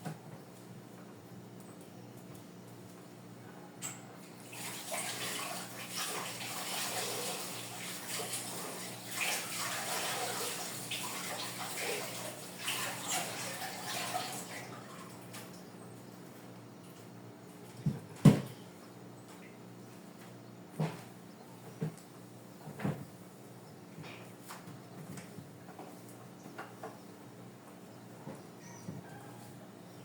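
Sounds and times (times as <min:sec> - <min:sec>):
water running from a tap: 0:04.4 - 0:15.2.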